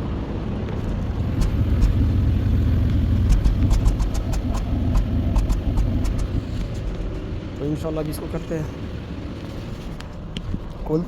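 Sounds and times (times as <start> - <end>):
car engine idling unevenly: 0.1 - 10.0
engine misfire ticks: 1.2 - 6.7.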